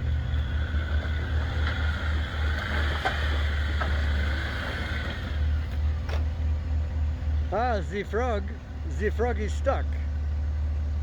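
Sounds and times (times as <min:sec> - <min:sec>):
engine running at low revs: 0:00.0 - 0:11.0.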